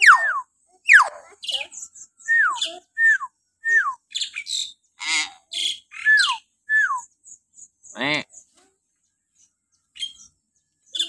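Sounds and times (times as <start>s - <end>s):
myna bird whistles and squawks: 0.0s - 4.7s, 5.6s - 7.1s.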